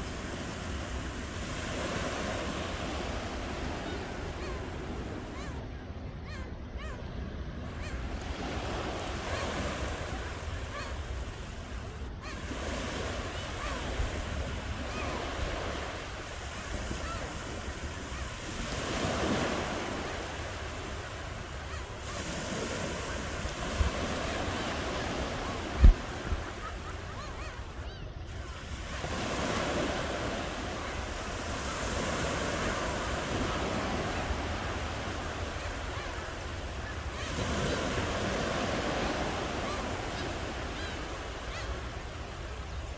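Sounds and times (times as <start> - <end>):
sea waves breaking: 0.0 - 42.9
wind rumbling on microphone: 23.1 - 27.0.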